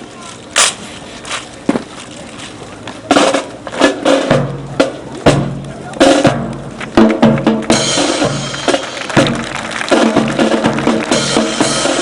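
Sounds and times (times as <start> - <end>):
band music: 3.0 - 12.0
bass drum and snare beat: 5.3 - 12.0.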